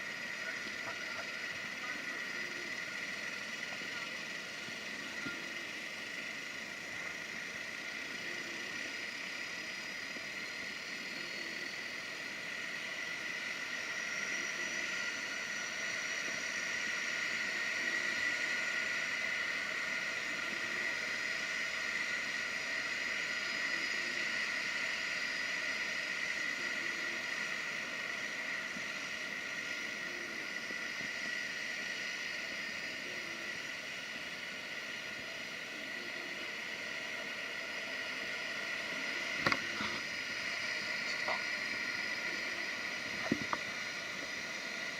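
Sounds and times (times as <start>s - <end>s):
turboprop engines whining: 0.0s - 44.9s.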